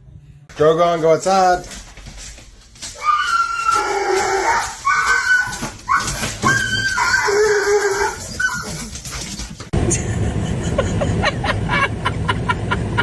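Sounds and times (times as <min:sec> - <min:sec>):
dog whining and crying: 0:02.9 - 0:09.1.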